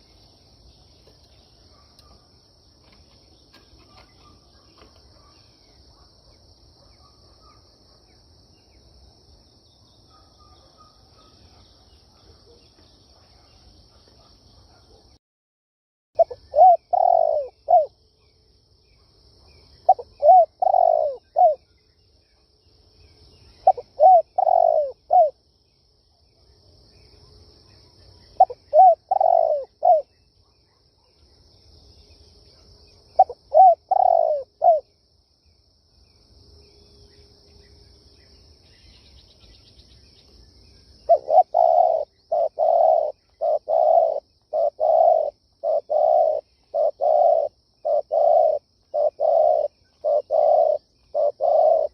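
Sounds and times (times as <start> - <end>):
dove cooing: 16.2 - 18.0, 19.9 - 21.6, 23.6 - 25.4, 28.4 - 30.1, 33.2 - 34.9, 41.1 - 51.9.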